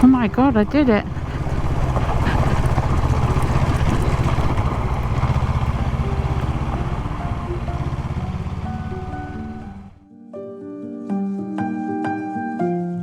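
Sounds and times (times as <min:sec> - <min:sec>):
motorcycle engine running: 0:00.0 - 0:10.0
wind and road noise: 0:00.0 - 0:10.0.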